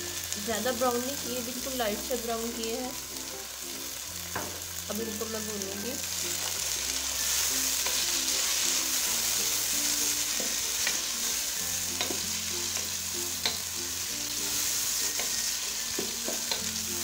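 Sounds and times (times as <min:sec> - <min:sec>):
vegetables sizzling in hot oil: 0:00.0 - 0:17.0
spoon knocking against pan: 0:04.3 - 0:04.6, 0:11.9 - 0:13.6, 0:15.1 - 0:16.7.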